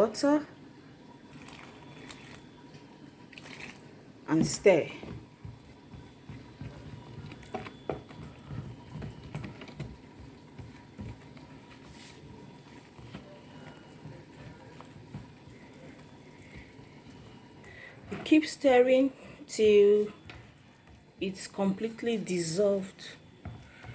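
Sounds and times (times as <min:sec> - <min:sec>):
spoon stirring in a bowl: 0:03.4 - 0:18.6.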